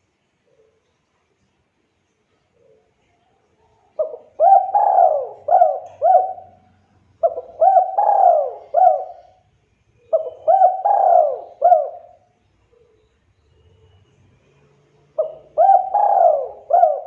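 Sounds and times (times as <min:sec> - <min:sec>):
dove cooing: 0:04.0 - 0:13.1, 0:15.1 - 0:17.0.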